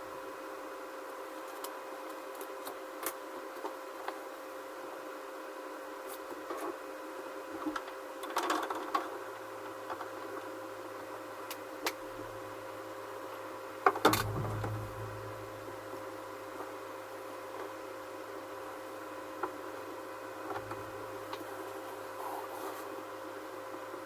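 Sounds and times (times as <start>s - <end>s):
steady hum: 14.1s - 17.1s, 20.5s - 21.5s.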